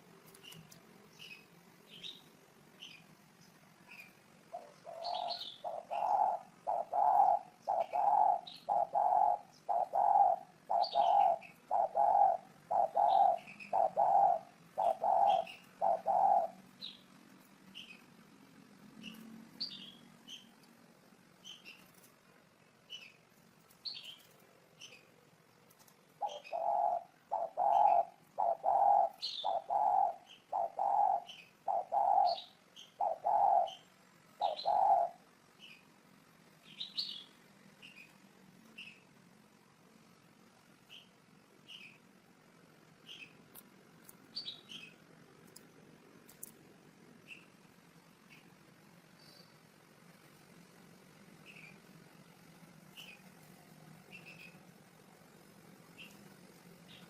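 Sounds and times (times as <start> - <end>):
small birds chirping: 0.0 - 57.0
dove cooing: 4.5 - 17.0, 26.1 - 35.3.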